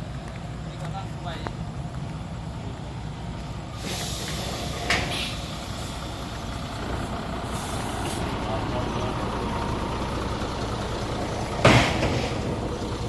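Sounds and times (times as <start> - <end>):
diesel engine idling: 0.0 - 13.0
air brakes hissing: 3.7 - 8.4, 11.6 - 13.0
sharp air puff: 3.8 - 6.0.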